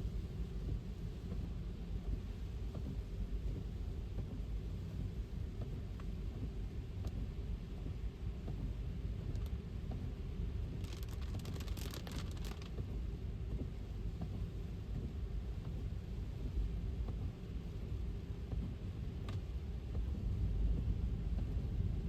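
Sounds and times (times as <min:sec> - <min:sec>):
rain: 0:00.0 - 0:22.0
crackling clicks: 0:10.8 - 0:12.8.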